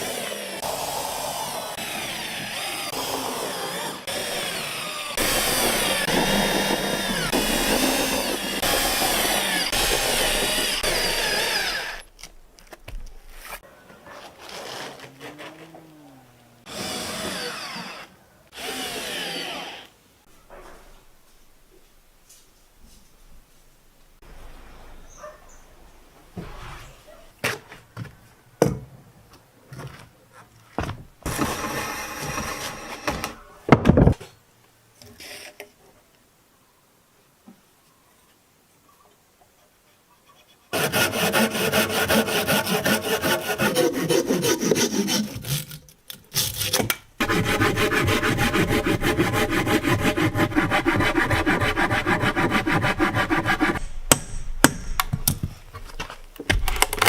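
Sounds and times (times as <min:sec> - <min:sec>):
saw cutting through wood: 0:00.0 - 0:12.1, 0:16.6 - 0:19.9, 0:40.8 - 0:53.8.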